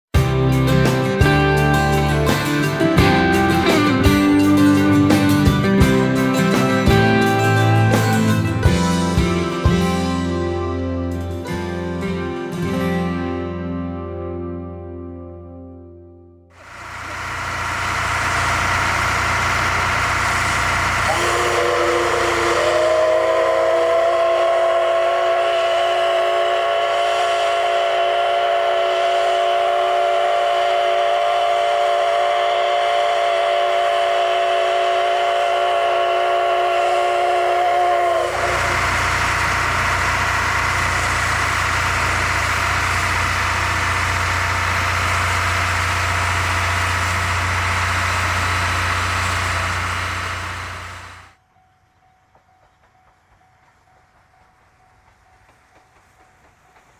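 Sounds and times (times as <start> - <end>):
steam locomotive whistle: 0.2 - 10.8, 16.6 - 51.4
train rumble and hum: 16.6 - 51.4, 52.0 - 56.9.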